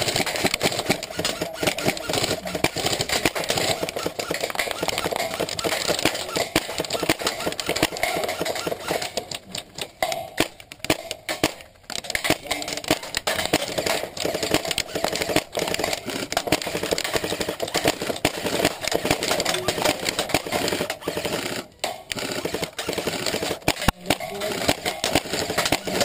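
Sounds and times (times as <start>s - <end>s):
airsoft gunfire: 0.0s - 26.0s.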